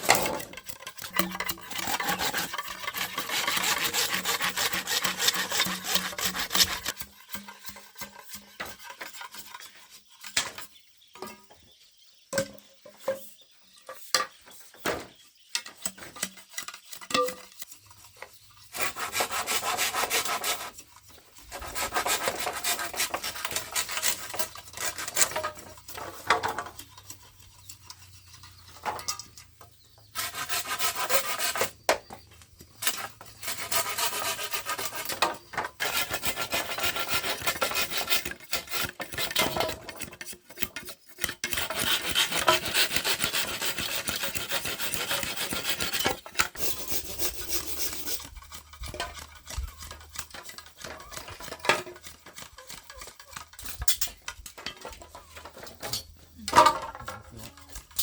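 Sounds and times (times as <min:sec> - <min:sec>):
hand tool strokes on bamboo: 0:00.0 - 0:10.2, 0:16.3 - 0:28.8, 0:30.0 - 0:31.8, 0:32.7 - 0:53.9.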